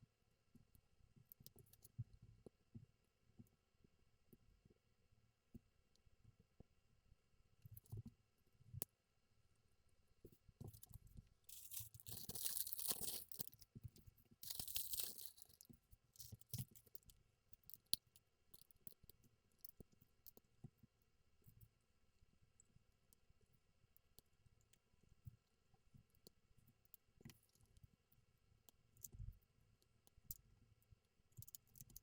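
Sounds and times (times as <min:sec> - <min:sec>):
plastic bag tearing and crinkling: 0:11.5 - 0:13.5, 0:14.4 - 0:15.6.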